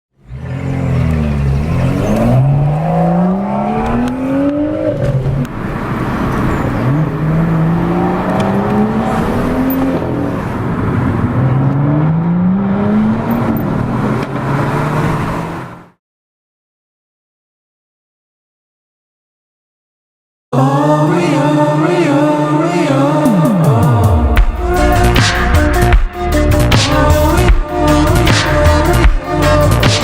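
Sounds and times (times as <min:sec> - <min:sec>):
car engine accelerating hard: 0:00.2 - 0:16.0.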